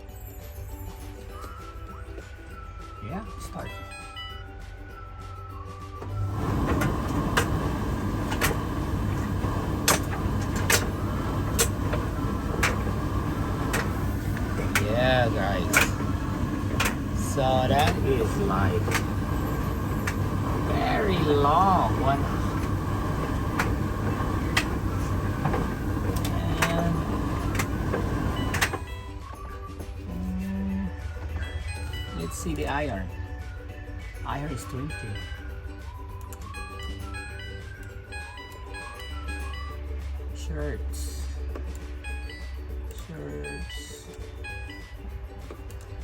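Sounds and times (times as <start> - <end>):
tumble dryer drum humming: 6.0 - 33.2.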